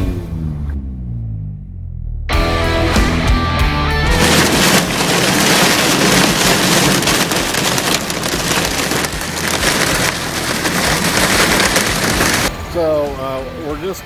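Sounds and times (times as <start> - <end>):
car road rumble: 0.0 - 12.8
hard rain on a car: 4.1 - 12.5.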